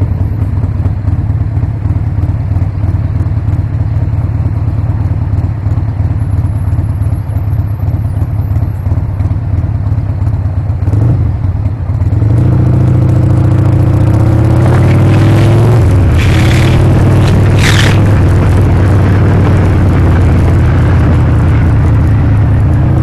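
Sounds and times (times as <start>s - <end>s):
motorcycle engine accelerating: 9.9s - 23.0s.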